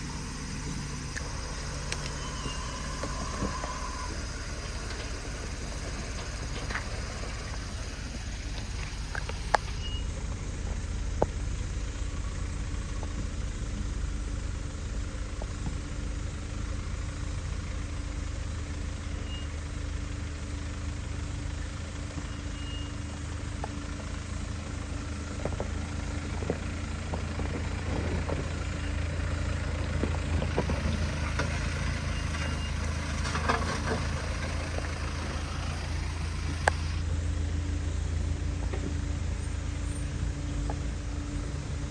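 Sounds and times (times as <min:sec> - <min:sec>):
vehicle engine running low: 0:00.0 - 0:41.9
scraping and crackling: 0:30.0 - 0:35.5.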